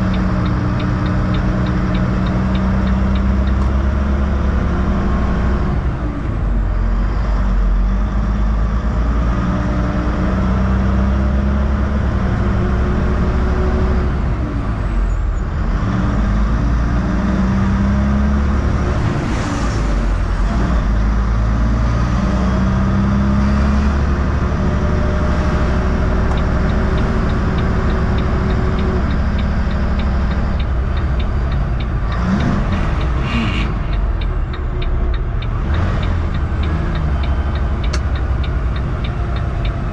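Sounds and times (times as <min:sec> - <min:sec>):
regular ticking: 0:00.0 - 0:04.8, 0:25.6 - 0:39.9
heavy truck engine drone: 0:00.0 - 0:39.9
road noise: 0:00.0 - 0:39.9.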